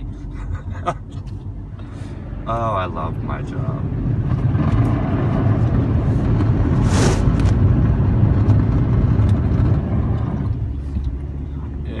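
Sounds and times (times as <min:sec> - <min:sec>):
vehicle driving on road: 0:00.0 - 0:12.0
brief hiss: 0:06.8 - 0:07.3.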